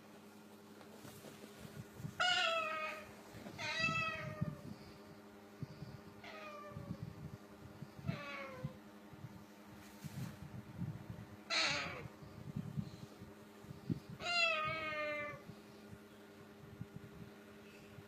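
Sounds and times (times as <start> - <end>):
cat meowing: 2.2 - 4.6, 11.5 - 12.1, 14.2 - 15.4.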